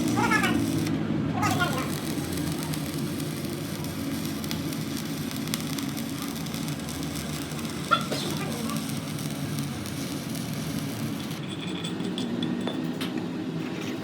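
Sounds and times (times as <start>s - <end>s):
workshop machinery running: 0.0s - 14.0s.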